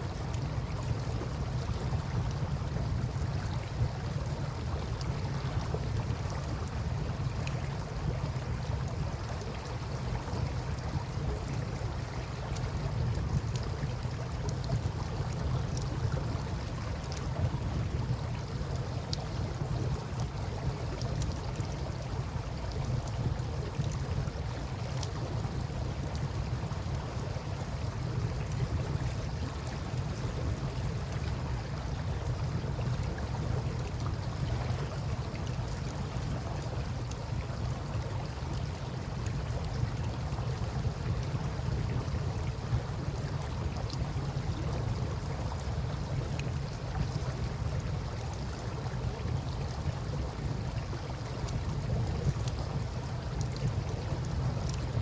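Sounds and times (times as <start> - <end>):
campfire crackling and popping: 12.4 - 30.5, 31.1 - 55.0.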